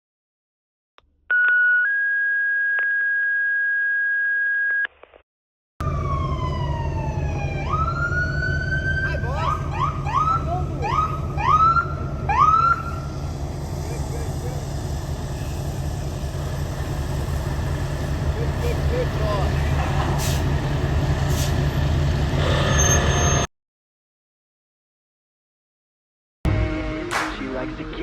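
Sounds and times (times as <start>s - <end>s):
heavy low rumble: 5.8s - 22.8s
fire engine siren wailing: 5.8s - 23.5s.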